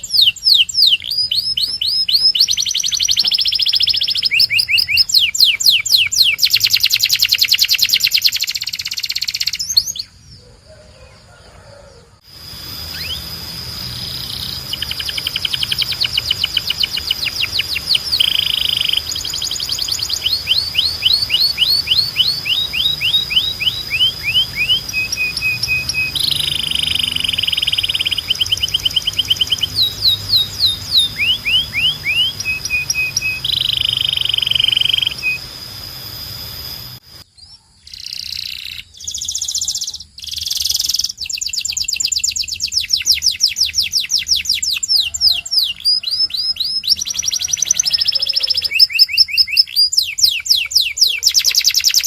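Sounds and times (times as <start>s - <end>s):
canary singing trills: 0.0s - 52.0s
steady high thin tone: 12.3s - 37.2s.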